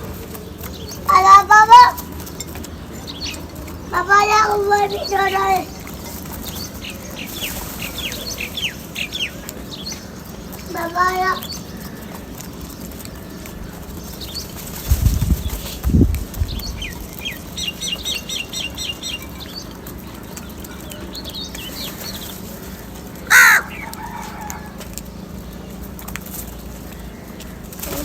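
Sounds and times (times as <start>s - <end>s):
wings flapping: 0.0s - 28.0s
high bird chirps: 0.7s - 25.8s
crow cawing: 22.6s - 24.8s.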